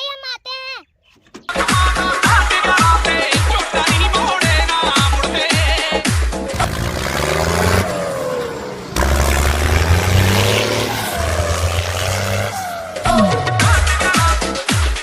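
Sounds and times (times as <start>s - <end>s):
tractor engine revving: 6.4s - 14.4s.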